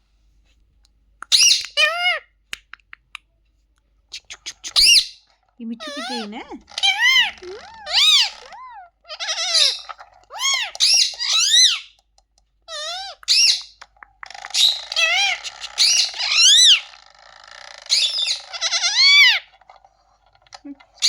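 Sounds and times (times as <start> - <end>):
parrot whistling calls: 14.6 - 16.8.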